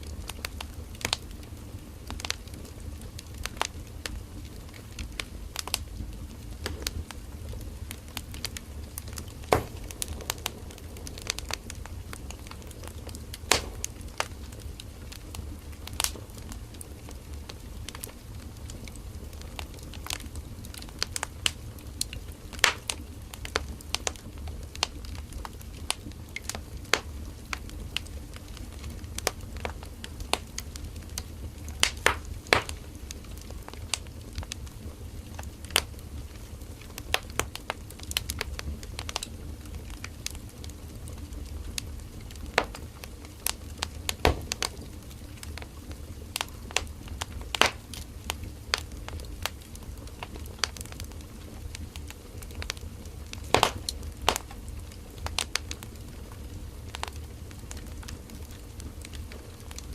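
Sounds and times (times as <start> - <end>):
campfire crackling and popping: 0.0 - 59.9
low rumble of fire: 0.0 - 59.9.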